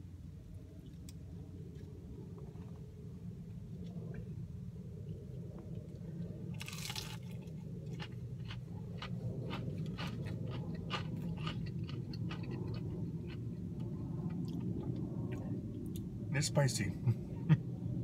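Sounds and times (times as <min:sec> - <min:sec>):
low hum: 0:00.0 - 0:18.0
person biting crispy food: 0:06.6 - 0:12.9
wet chewing clicks: 0:06.6 - 0:16.0.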